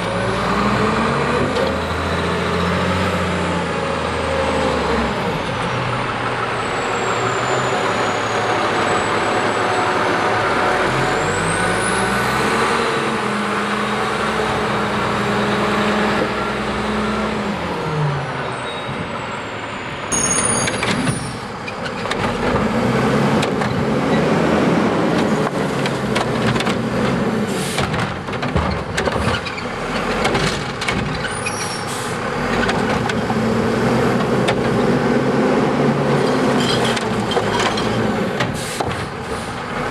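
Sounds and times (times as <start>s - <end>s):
diesel engine revving: 0.0s - 39.9s
clattering and bangs of refuse: 25.8s - 31.7s, 36.2s - 39.8s.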